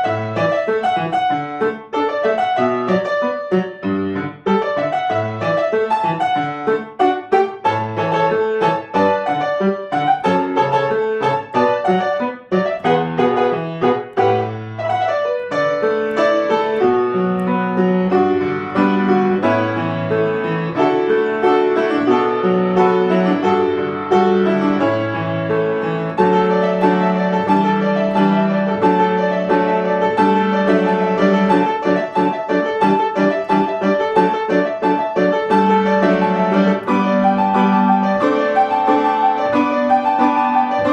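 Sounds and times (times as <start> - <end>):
piano piece: 0.0 - 40.9.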